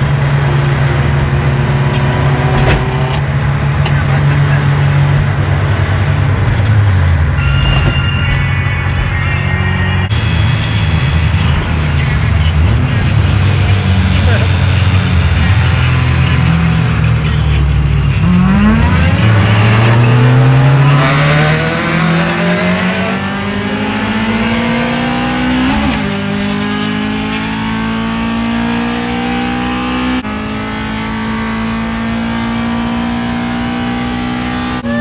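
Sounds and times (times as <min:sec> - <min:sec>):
car engines accelerating: 0:00.0 - 0:35.0
tyre and road noise: 0:00.0 - 0:35.0.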